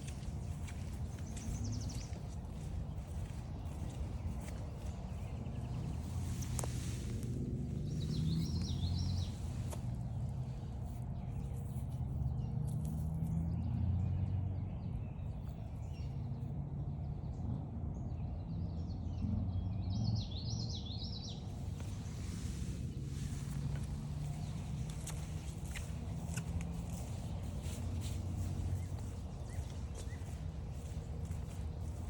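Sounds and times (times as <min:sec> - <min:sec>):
low rumble: 0:21.4 - 0:32.0.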